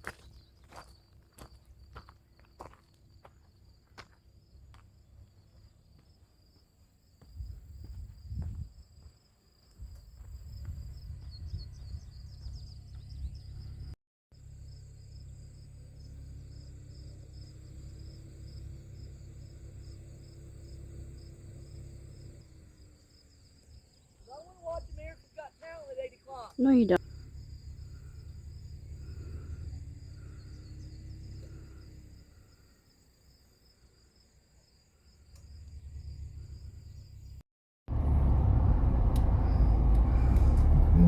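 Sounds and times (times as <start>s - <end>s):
insects trilling: 14.5s - 37.4s
loud low rumble: 37.9s - 41.0s.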